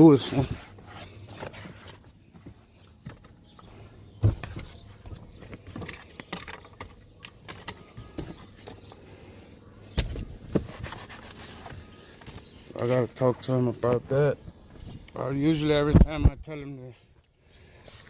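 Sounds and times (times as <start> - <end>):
handling clicks and rustles: 0.0 - 9.0.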